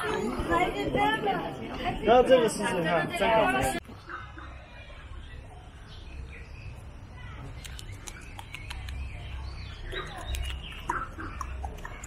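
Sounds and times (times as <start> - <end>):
small birds chirping: 3.8 - 12.0.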